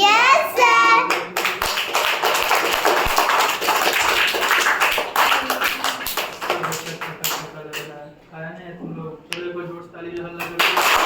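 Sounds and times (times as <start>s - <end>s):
hands clapping: 0.7s - 7.9s, 10.2s - 11.0s.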